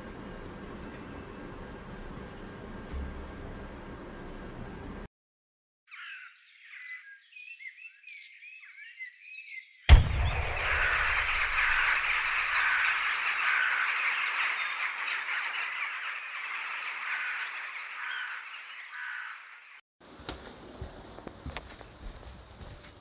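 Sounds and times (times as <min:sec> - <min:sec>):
chorus of small animal calls: 0:05.9 - 0:09.2, 0:10.6 - 0:19.8.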